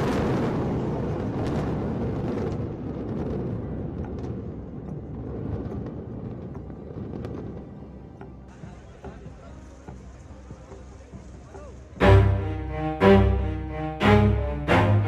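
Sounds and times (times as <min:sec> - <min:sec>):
sudden blast: 0:12.0 - 0:15.0.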